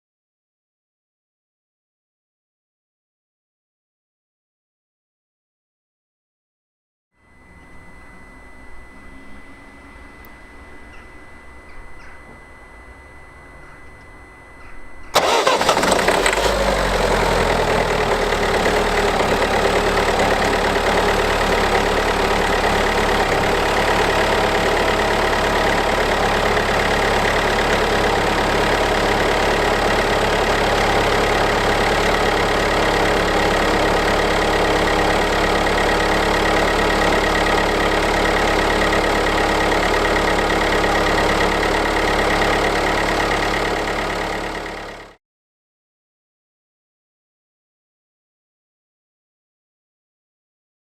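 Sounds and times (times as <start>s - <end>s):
diesel engine starting and idling: 15.1s - 45.2s.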